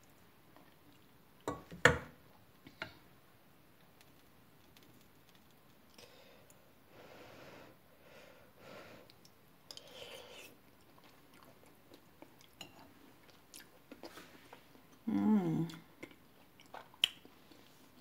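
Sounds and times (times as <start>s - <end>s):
faint chewing: 0.0s - 1.2s, 9.1s - 15.0s, 15.6s - 18.0s.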